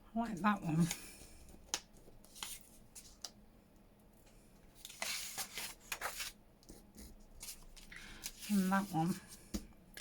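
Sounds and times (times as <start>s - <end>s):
paper rustling: 0.8s - 3.4s, 4.8s - 6.8s, 7.4s - 9.4s.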